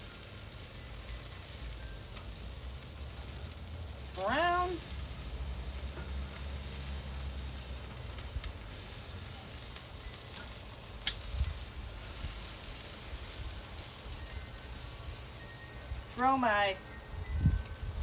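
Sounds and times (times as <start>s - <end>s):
chicken sizzling on a grill: 0.0s - 18.0s.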